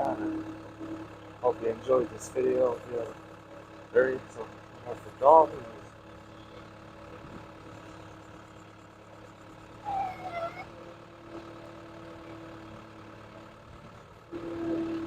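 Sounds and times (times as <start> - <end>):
engine idling: 0.0 - 15.0
voice calling: 9.8 - 10.7.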